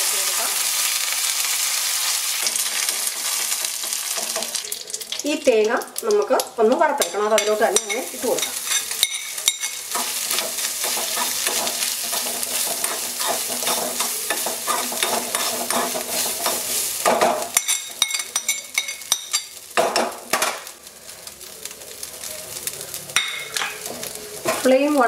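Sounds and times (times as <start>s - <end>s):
food sizzling in hot oil: 0.0s - 25.0s
metal spoon scraping pan: 7.0s - 19.5s.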